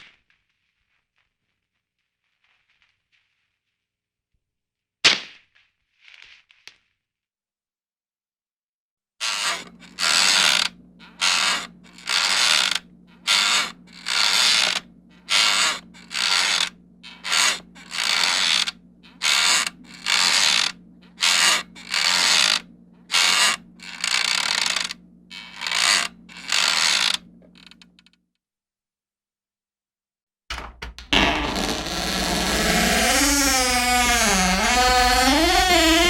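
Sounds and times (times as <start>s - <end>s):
loud noisy mechanism strokes: 9.3s - 27.7s
steady low hum: 9.6s - 27.7s.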